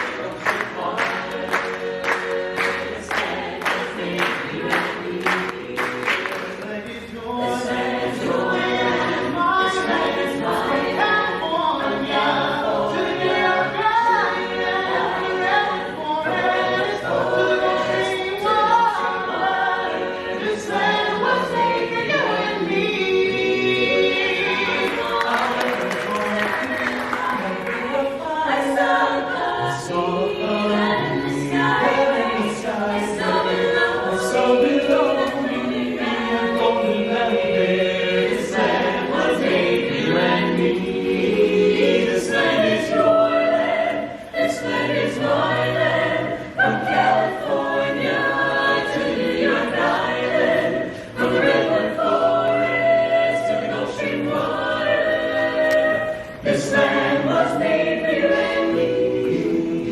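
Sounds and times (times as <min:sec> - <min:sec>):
a cappella choir singing: 0:00.0 - 0:59.9.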